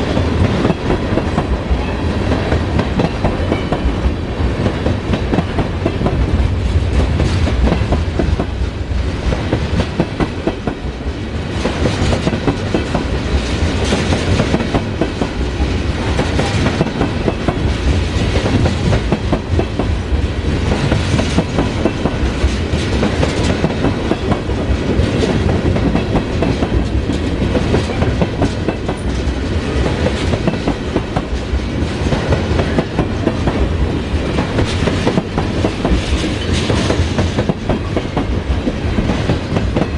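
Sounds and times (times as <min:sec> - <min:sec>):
freight train rumbling past: 0:00.0 - 0:39.9
wheels clicking over rail joints: 0:20.8 - 0:39.9.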